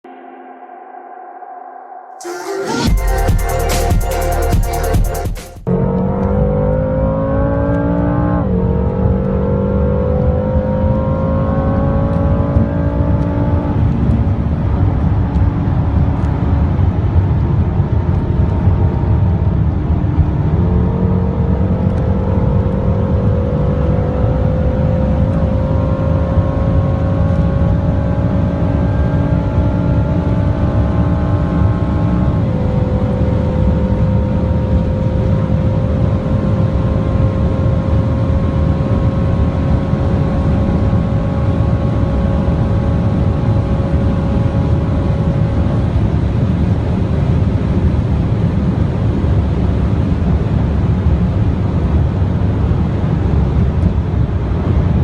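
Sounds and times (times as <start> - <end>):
car engine at full throttle: 2.2 - 55.0
road and wind noise: 5.6 - 55.0.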